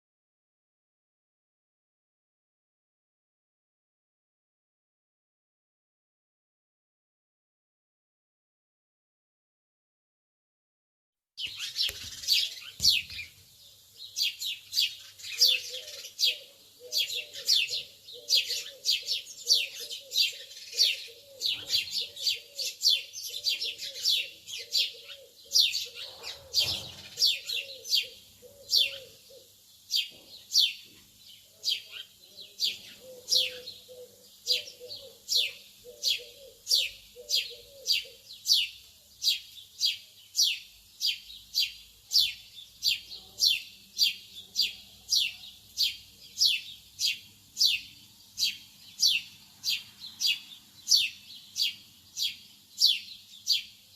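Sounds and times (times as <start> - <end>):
lovebirds chirping: 11.4 - 53.9
low pulsing bird call: 15.3 - 29.6, 32.7 - 38.7.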